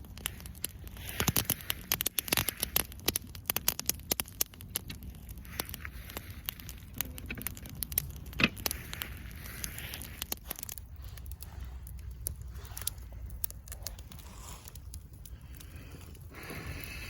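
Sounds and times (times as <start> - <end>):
sharp pops: 0.0 - 15.6
campfire crackling: 0.0 - 17.0
low steady rumble: 0.0 - 17.0.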